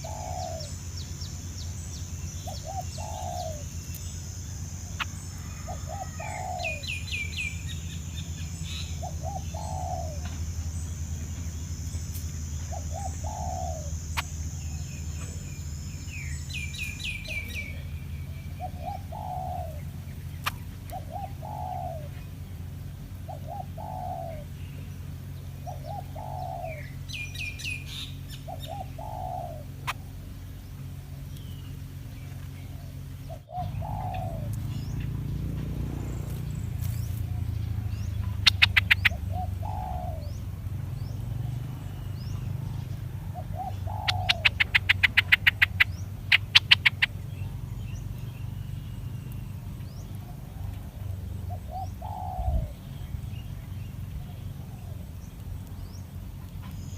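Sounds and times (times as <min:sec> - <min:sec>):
dove cooing: 0:00.0 - 0:00.9, 0:01.8 - 0:03.8, 0:04.8 - 0:10.7, 0:12.6 - 0:15.6, 0:16.2 - 0:22.3, 0:23.2 - 0:24.6, 0:25.6 - 0:30.3, 0:32.6 - 0:40.6, 0:41.4 - 0:47.2, 0:50.1 - 0:52.9, 0:54.2 - 0:55.2
small birds chirping: 0:00.0 - 0:56.9.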